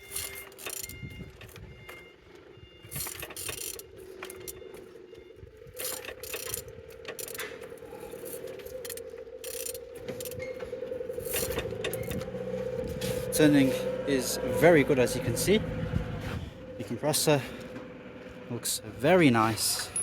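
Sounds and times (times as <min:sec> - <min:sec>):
ratchet clicking: 0:00.1 - 0:01.0, 0:02.9 - 0:04.6, 0:05.8 - 0:07.6, 0:08.2 - 0:10.5
steady hum: 0:03.0 - 0:20.0.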